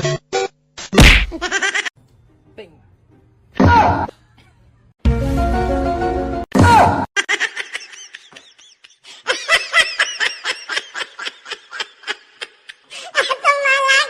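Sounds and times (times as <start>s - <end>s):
person laughing hard: 7.2s - 13.4s.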